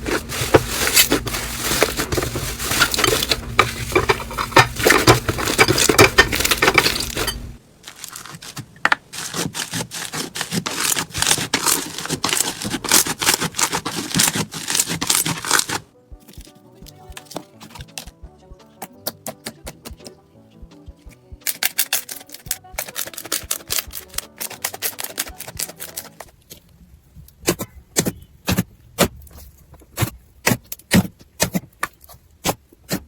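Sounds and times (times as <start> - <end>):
crunchy slime crackling: 7.8 - 15.9.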